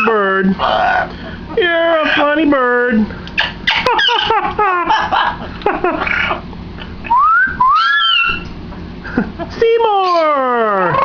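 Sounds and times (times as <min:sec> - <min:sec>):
parrot babbling: 0:07.1 - 0:08.5
parrot whistles: 0:07.1 - 0:08.5.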